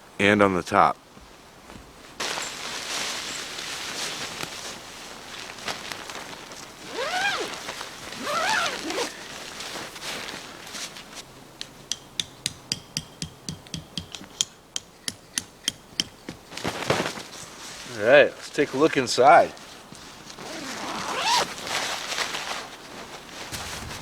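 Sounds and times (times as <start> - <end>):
tent fabric rustling: 1.6 - 11.3, 16.5 - 24.0.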